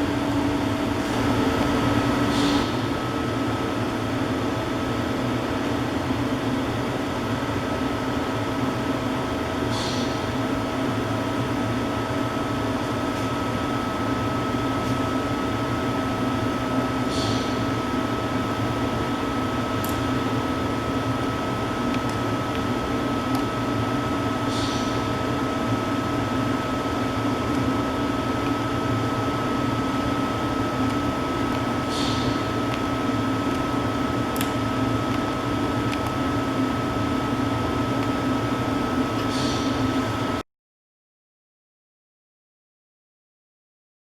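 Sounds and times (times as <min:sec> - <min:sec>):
machine hum with high whine: 0:00.0 - 0:40.4.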